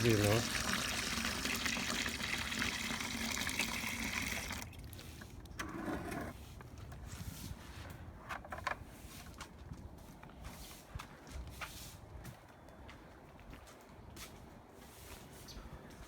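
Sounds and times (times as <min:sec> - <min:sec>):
tap water running into bucket: 0:00.0 - 0:05.6.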